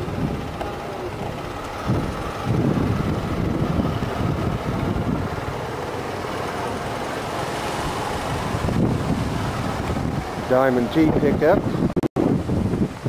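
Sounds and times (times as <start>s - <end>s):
outdoor background noise: 0.0s - 13.0s
wind buffeting microphone: 0.0s - 13.0s.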